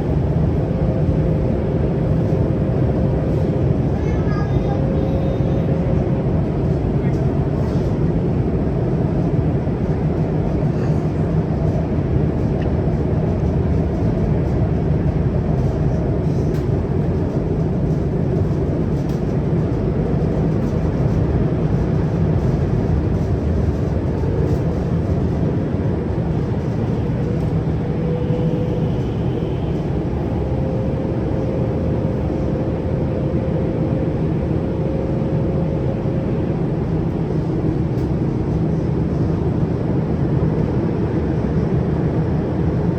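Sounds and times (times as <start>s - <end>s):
rumble of wheels on rail: 0.0s - 42.9s
faint whine: 23.6s - 37.6s.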